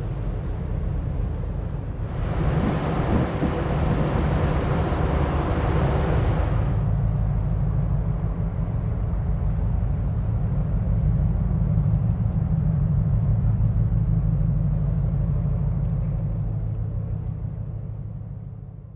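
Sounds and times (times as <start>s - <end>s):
low bass rumble: 1.9s - 8.3s.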